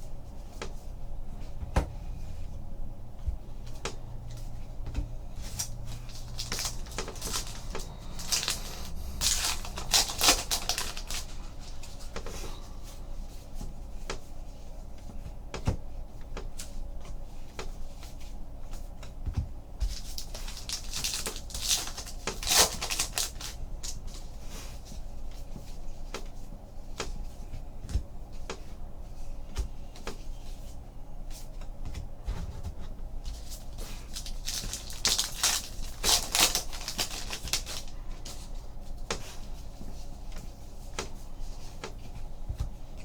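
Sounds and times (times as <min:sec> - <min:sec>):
wrappers crinkling and tearing: 0:05.4 - 0:12.4, 0:19.9 - 0:24.4, 0:33.3 - 0:38.6.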